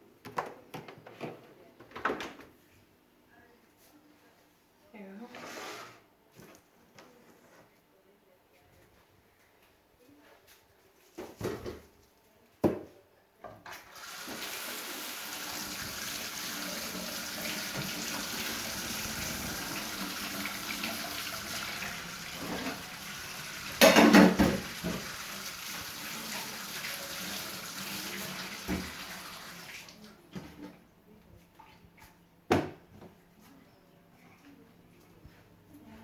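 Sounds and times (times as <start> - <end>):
tap running into sink: 15.6 - 22.9, 23.6 - 25.3, 28.6 - 29.3
splashing and knocking: 23.7 - 25.2.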